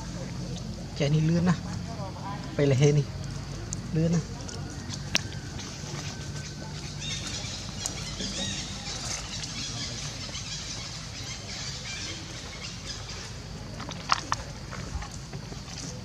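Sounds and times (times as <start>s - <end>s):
animals chirping and squeaking: 4.5s - 13.5s.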